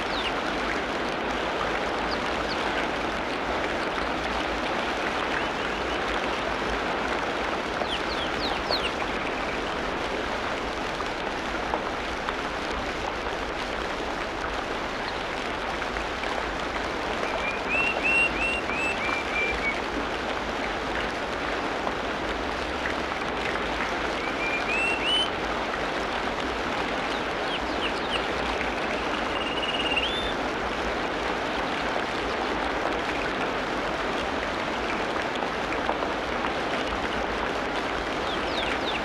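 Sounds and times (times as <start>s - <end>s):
bird chirping: 24.2s - 25.3s, 29.0s - 30.3s.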